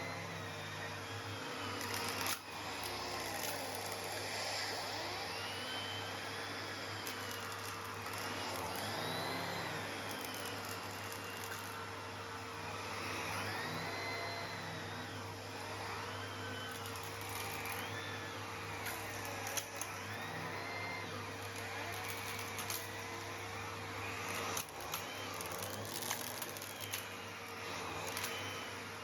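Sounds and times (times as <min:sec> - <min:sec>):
vacuum cleaner running: 0:00.0 - 0:29.0
stones clinking up hose: 0:01.8 - 0:04.1, 0:07.0 - 0:11.8, 0:24.3 - 0:27.2, 0:27.9 - 0:28.5.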